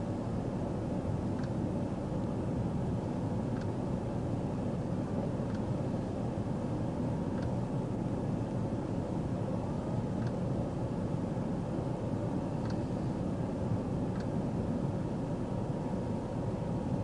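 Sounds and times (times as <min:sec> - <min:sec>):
faint light ticks: 0:01.4 - 0:01.6, 0:03.5 - 0:03.8, 0:05.4 - 0:05.7, 0:07.3 - 0:07.6, 0:10.2 - 0:10.4, 0:12.6 - 0:12.8, 0:14.1 - 0:14.4.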